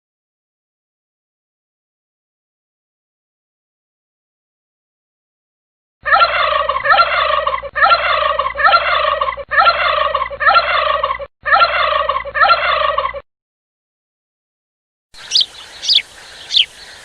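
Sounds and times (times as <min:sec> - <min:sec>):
looped recorded bird call: 0:06.0 - 0:13.2, 0:15.2 - 0:17.0.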